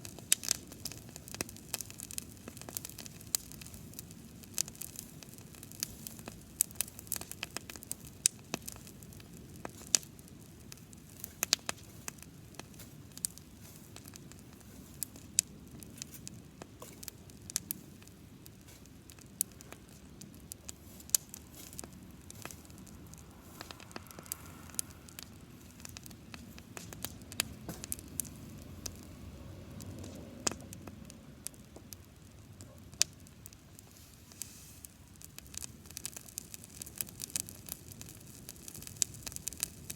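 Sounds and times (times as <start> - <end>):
campfire crackling and popping: 0.0 - 39.9
low rush of burning: 0.0 - 39.9.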